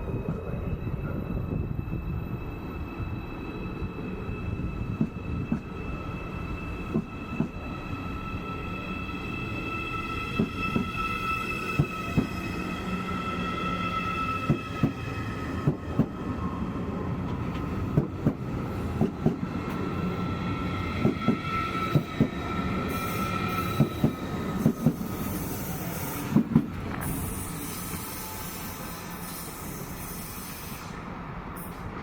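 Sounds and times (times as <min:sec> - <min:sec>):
high steady squeal: 0:00.0 - 0:17.1.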